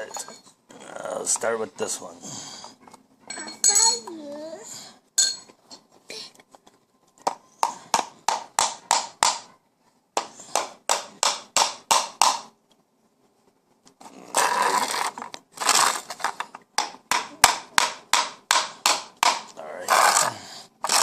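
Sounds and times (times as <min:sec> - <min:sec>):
hammer striking nails into wood: 0:07.6 - 0:09.5, 0:10.2 - 0:12.6, 0:16.8 - 0:20.2
scraping noises: 0:14.0 - 0:16.5, 0:19.7 - 0:21.0.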